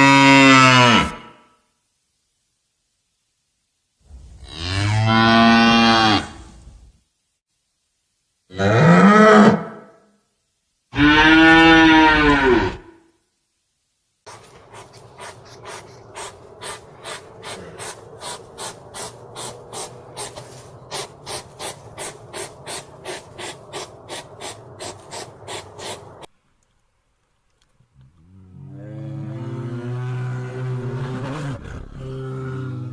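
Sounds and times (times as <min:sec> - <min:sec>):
cow mooing: 0:28.3 - 0:32.9.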